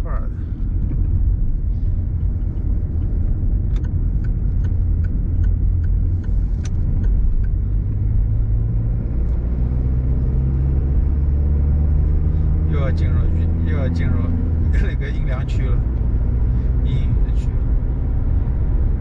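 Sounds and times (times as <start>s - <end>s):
car engine and road noise: 0.0s - 19.0s
faint light ticks: 2.1s - 7.6s.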